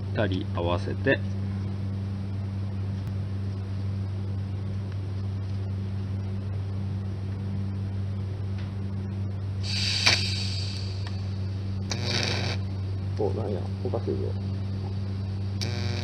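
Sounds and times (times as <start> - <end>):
low electrical hum: 0.0 - 16.0
welding arc hissing and crackling: 9.6 - 12.6, 15.6 - 16.0.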